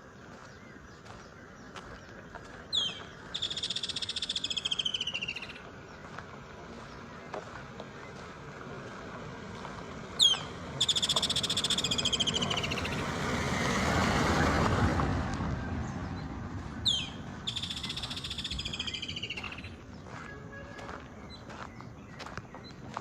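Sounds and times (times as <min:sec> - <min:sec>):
songbird singing trill: 0:00.0 - 0:08.6, 0:10.2 - 0:13.1, 0:15.8 - 0:23.0
traffic noise rushing: 0:00.0 - 0:23.0.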